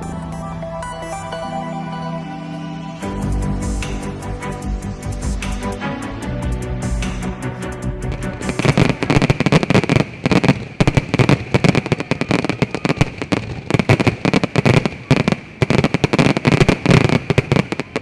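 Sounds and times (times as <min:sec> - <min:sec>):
fireworks bangs and crackles: 0:08.1 - 0:18.0
high crackling hiss: 0:08.1 - 0:18.0.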